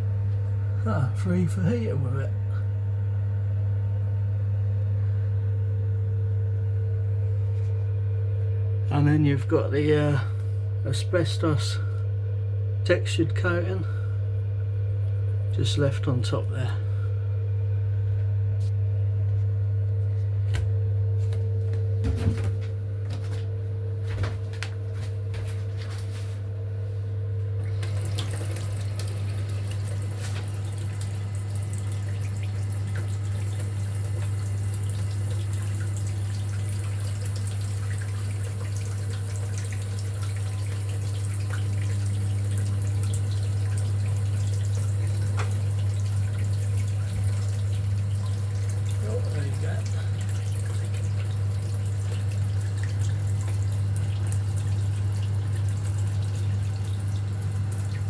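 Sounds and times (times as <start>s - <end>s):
steady low hum: 0.0s - 58.0s
water running with a hiss: 27.6s - 58.0s.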